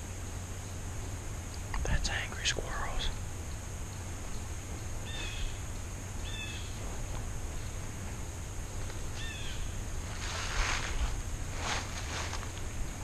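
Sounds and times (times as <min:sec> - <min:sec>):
bird calling: 0:03.9 - 0:06.8, 0:09.1 - 0:09.9.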